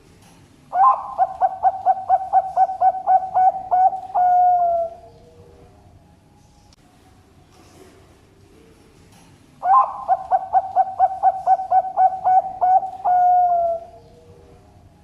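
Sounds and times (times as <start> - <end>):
dove cooing: 0.7 - 5.7, 9.6 - 14.7.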